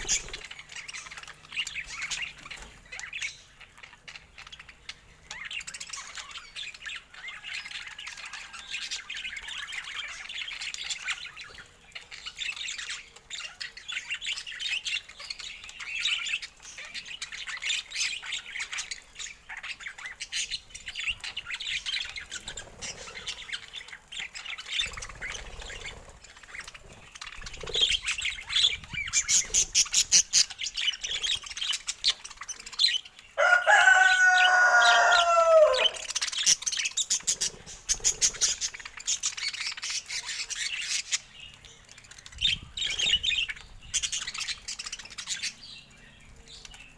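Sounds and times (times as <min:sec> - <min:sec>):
budgerigars chattering: 0:00.0 - 0:07.4.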